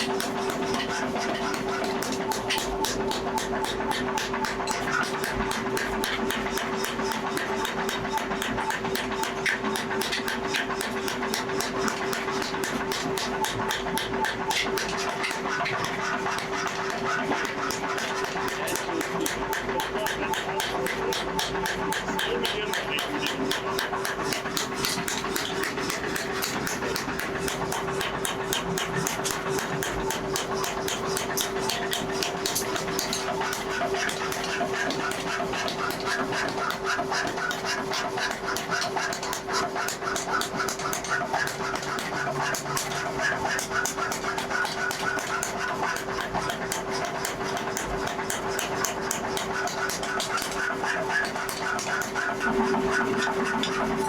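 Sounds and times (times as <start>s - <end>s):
hammering on steel: 0.0s - 54.0s
rapid irregular ticks: 0.0s - 54.0s
steady machine hum: 0.0s - 54.0s.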